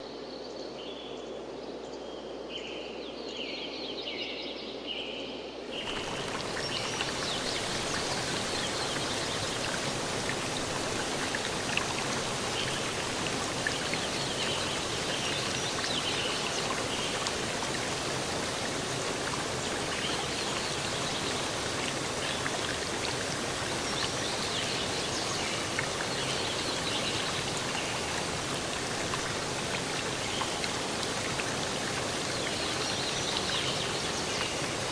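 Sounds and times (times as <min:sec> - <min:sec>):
rushing water: 0:05.7 - 0:34.9.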